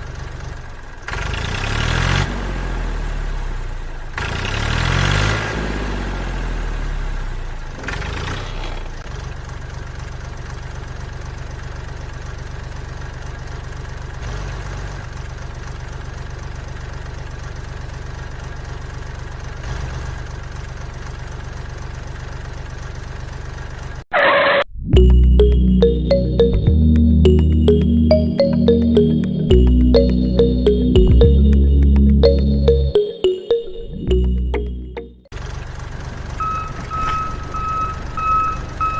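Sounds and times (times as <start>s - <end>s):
short bright sound: 25.0s - 35.3s.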